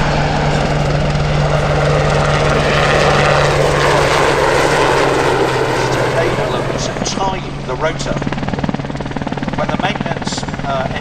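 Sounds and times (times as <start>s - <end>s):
helicopter rotor and engines: 0.0s - 11.0s.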